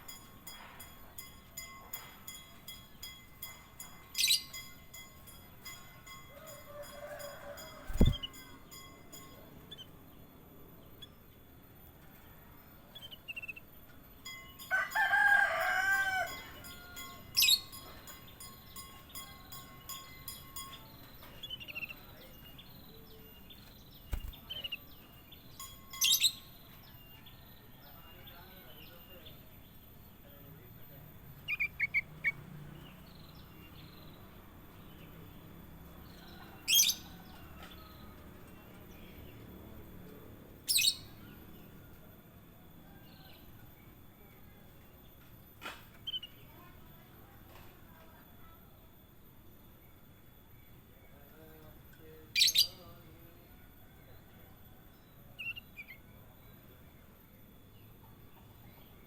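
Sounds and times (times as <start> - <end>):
songbirds chirping: 0.0 - 59.0
rooster crowing: 6.3 - 8.3, 14.7 - 17.2
bulbul chirping: 7.9 - 8.4.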